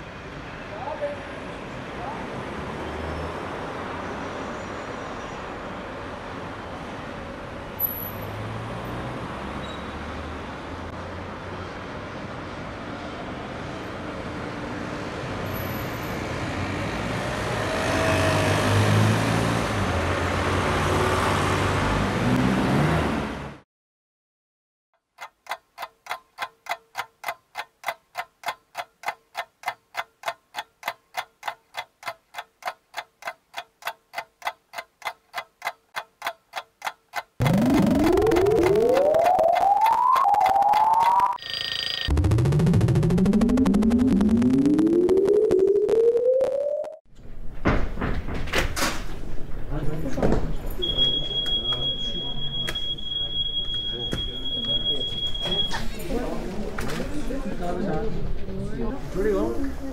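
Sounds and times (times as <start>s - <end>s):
road traffic noise: 0.0s - 23.6s, 25.3s - 42.2s, 48.8s - 59.9s
vehicle passing: 8.3s - 11.9s, 16.3s - 23.6s
clock ticking: 25.0s - 45.6s.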